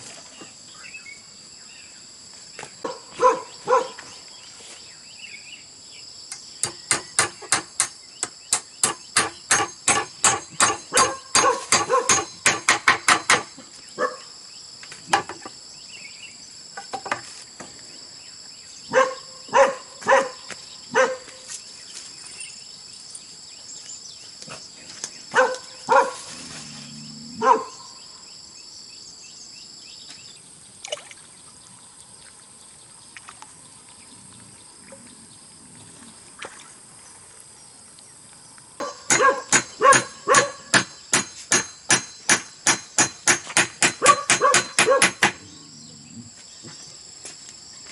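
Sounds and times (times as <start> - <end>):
insects droning: 0.0 - 47.9
hammer blows on bamboo: 6.3 - 13.6, 38.9 - 45.4.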